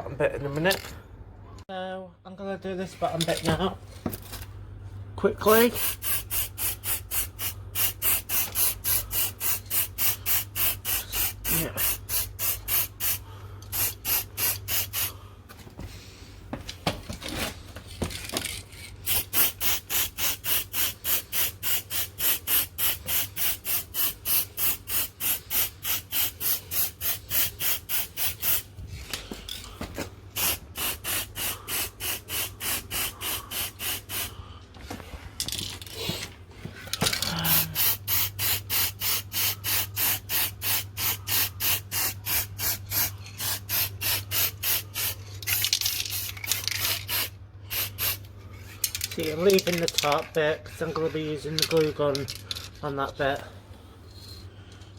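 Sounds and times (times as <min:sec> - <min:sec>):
spray can hissing: 0:05.7 - 0:15.2, 0:19.0 - 0:28.7, 0:30.3 - 0:34.3, 0:37.4 - 0:48.3.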